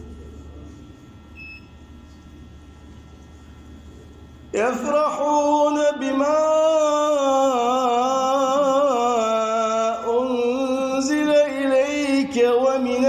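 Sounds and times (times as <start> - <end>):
man reciting melodically: 4.5 - 13.0.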